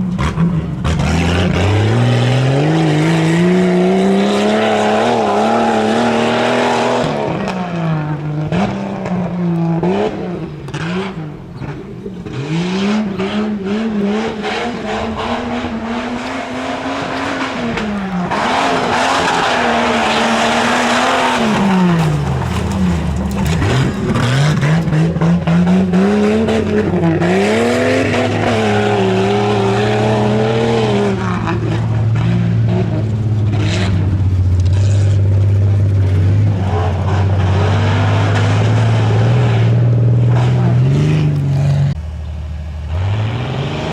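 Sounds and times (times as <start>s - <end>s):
truck engine revving: 0.0s - 43.9s.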